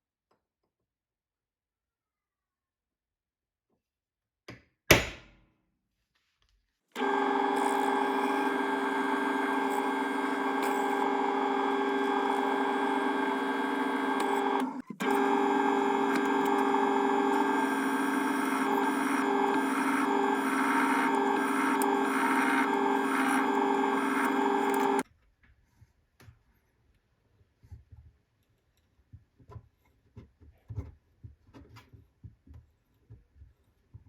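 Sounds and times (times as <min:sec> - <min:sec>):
power tool running: 0:07.0 - 0:25.0.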